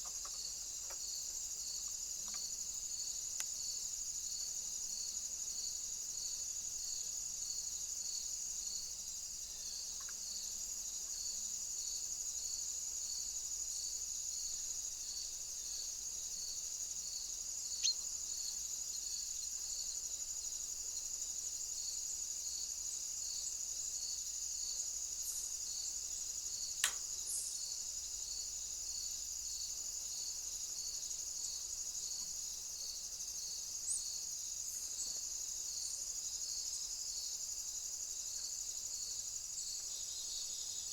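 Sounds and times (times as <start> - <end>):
crickets trilling: 0.0 - 40.9
insect chirping: 0.0 - 40.9.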